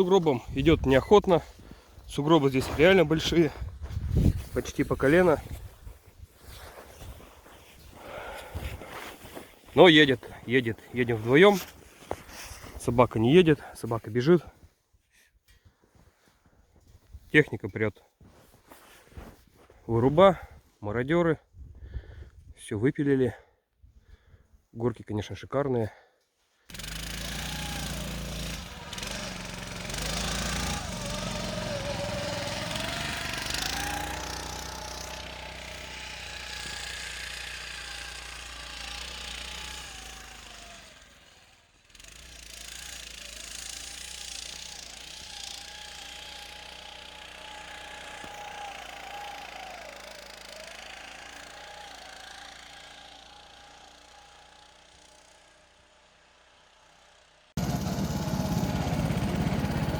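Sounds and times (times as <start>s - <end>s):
snow scooter engine running: 0.0s - 13.7s, 26.7s - 59.9s.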